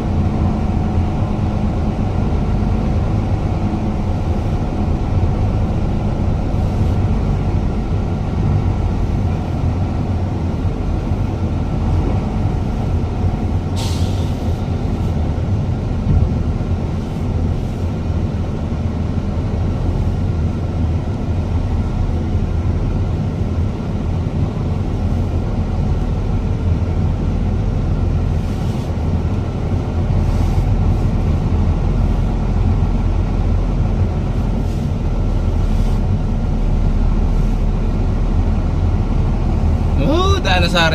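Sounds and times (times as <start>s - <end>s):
truck engine running: 0.0s - 40.9s
sharp air hiss: 13.8s - 14.6s.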